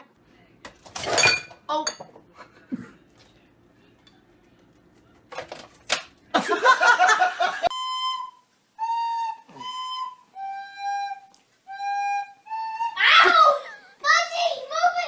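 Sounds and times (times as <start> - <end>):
whistle playing held notes: 7.7 - 13.0.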